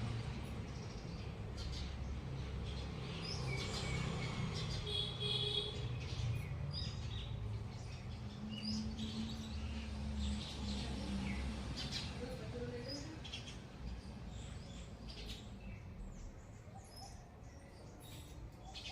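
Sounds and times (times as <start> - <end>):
small birds chirping: 0.0 - 18.9.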